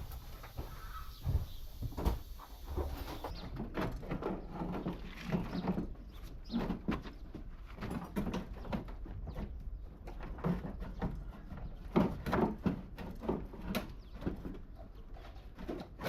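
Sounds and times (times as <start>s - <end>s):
knocks and clatter of metalwork: 3.3s - 16.0s.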